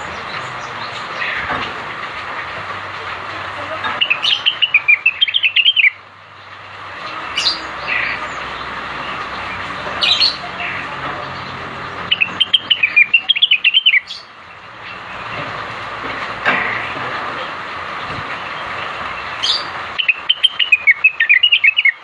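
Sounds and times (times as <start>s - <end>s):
bird chirping: 3.7s - 15.5s, 18.0s - 22.0s.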